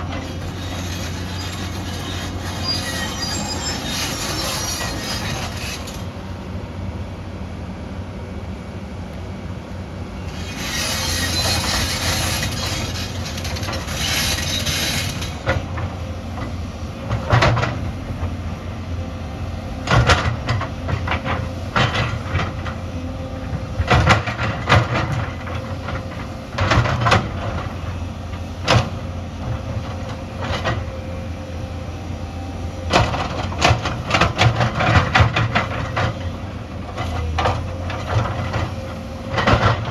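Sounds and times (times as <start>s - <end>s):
excavator diesel engine: 0.0s - 39.9s
high hissing squeal: 0.6s - 6.0s.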